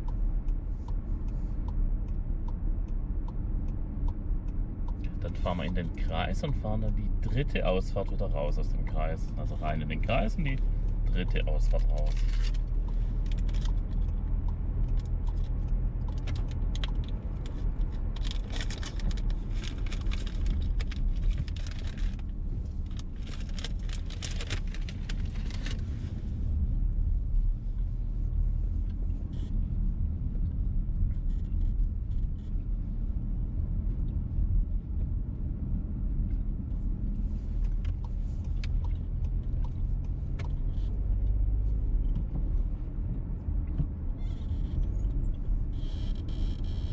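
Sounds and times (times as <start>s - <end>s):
car engine and road rumble: 0.0s - 46.9s
sharp clicking and crackling: 9.6s - 26.1s.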